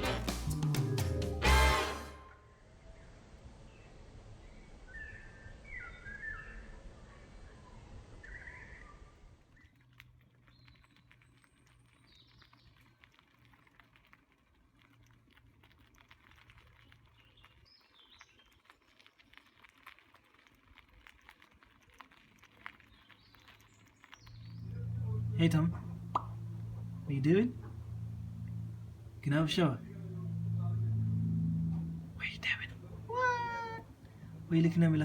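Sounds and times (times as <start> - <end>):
patter of tiny clicks: 9.5 - 24.9.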